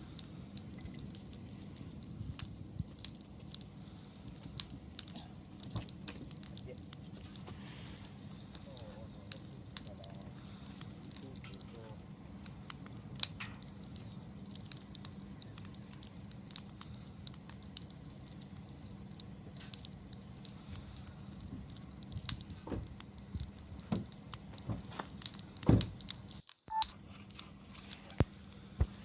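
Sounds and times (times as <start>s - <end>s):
sharp pops and snaps: 0.0s - 29.0s
wood bonfire crackling: 0.0s - 29.0s.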